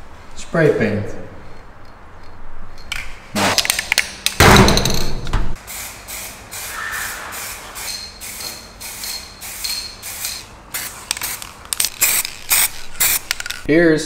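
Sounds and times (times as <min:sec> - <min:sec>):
spray paint hissing: 0:05.6 - 0:13.7.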